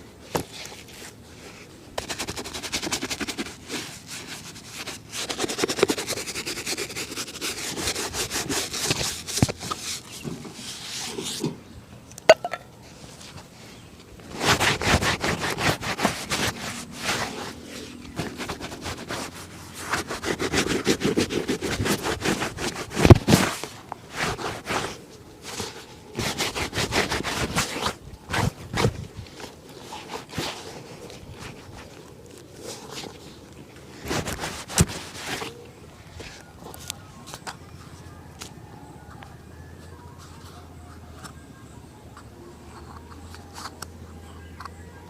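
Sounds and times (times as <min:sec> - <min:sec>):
shoe being brushed: 0:00.3 - 0:11.5, 0:14.3 - 0:33.2, 0:34.0 - 0:35.6.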